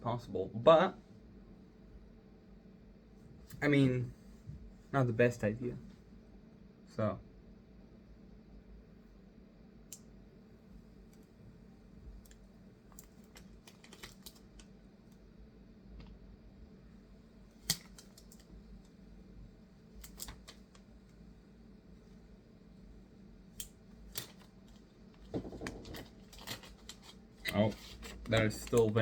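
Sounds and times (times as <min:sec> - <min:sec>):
faint hum: 0:00.0 - 0:29.0
small parts and tools clicking: 0:12.2 - 0:14.8, 0:20.0 - 0:20.9, 0:23.5 - 0:29.0.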